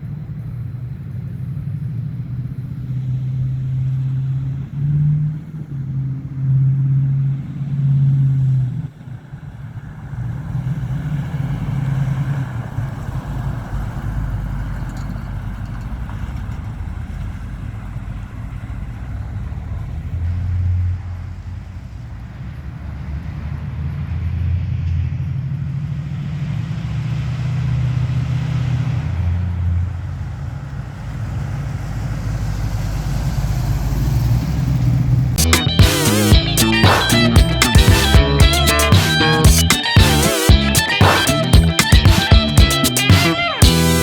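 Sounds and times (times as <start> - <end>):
pickup truck engine running: 35.4 - 44.0.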